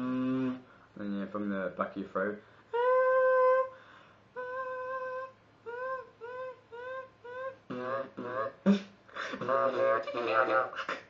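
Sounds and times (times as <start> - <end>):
beatboxer vocal robot noise: 0.0 - 0.6, 4.4 - 11.0
rough buzzy vocal sound: 0.0 - 0.7, 4.4 - 11.0.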